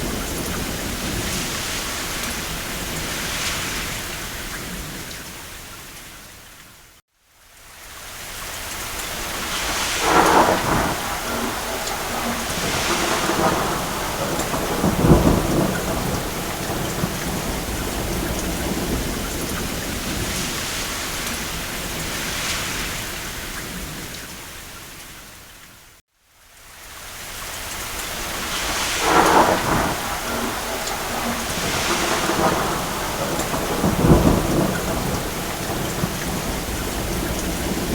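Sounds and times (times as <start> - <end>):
thunder rolling: 0.0 - 5.1, 9.2 - 24.1, 28.1 - 37.9
heavy rain: 0.0 - 37.9.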